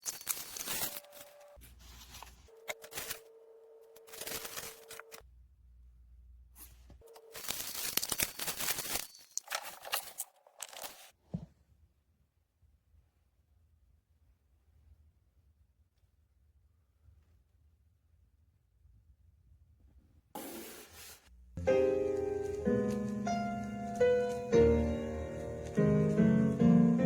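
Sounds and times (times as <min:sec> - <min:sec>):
rustling tearing handling noise: 0:04.0 - 0:05.2, 0:07.1 - 0:11.1.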